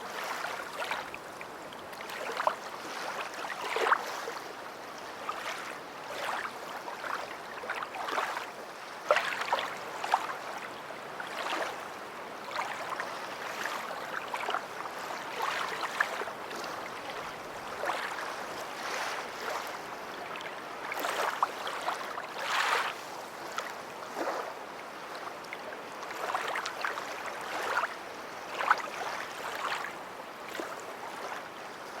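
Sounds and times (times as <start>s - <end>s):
small waves lapping: 0.0s - 32.0s.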